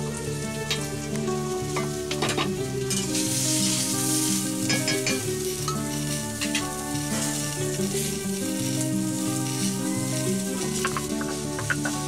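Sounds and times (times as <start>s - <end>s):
instrumental background music: 0.0s - 12.0s
vegetables sizzling in oil: 0.0s - 12.0s
scraping in a wok: 1.7s - 12.0s
stone roller on grinding slab: 8.0s - 12.0s.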